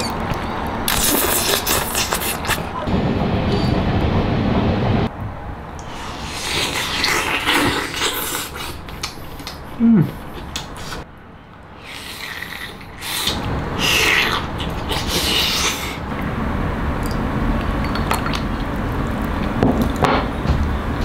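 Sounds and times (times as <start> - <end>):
man chewing food: 0.0 - 2.7, 5.8 - 16.3, 17.0 - 20.0
man humming low: 9.8 - 10.3.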